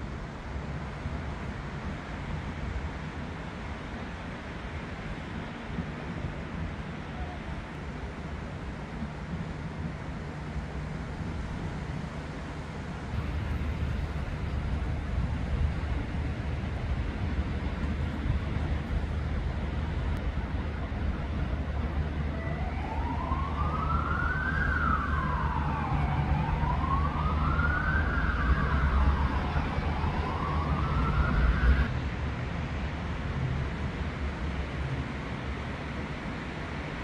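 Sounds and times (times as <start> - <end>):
city traffic rumble: 0.0 - 37.0
emergency siren wailing: 21.5 - 31.9.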